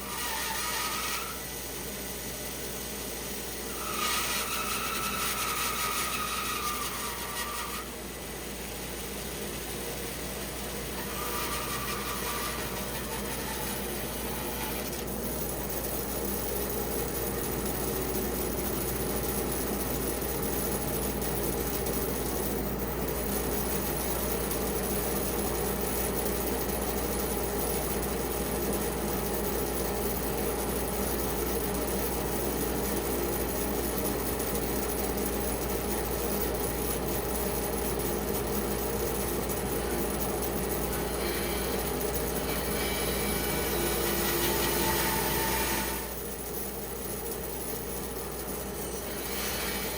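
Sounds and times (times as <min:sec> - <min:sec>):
band saw cutting wood: 0:00.0 - 0:01.5, 0:03.7 - 0:08.0, 0:10.9 - 0:15.2, 0:40.9 - 0:46.1, 0:48.9 - 0:49.9.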